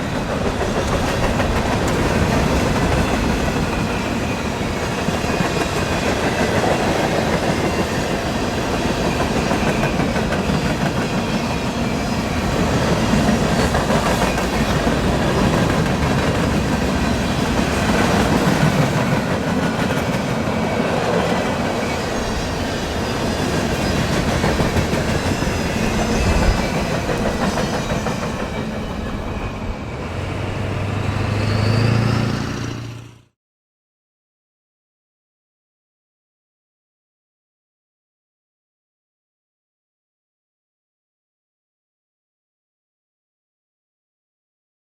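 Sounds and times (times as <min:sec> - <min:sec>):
train wheels clattering over rail joints: 0:00.0 - 0:11.5
rising squeal: 0:20.5 - 0:24.3, 0:25.1 - 0:33.3.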